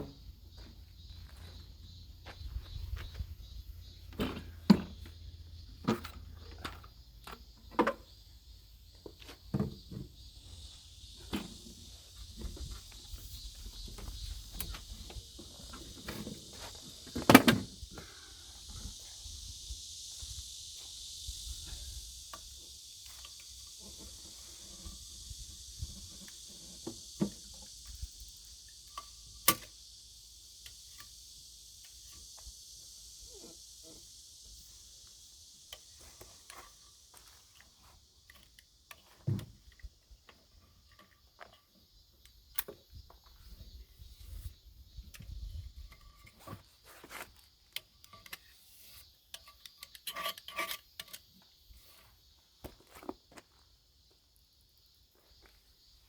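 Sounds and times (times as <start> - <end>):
steady high hiss: 0.0 - 40.2.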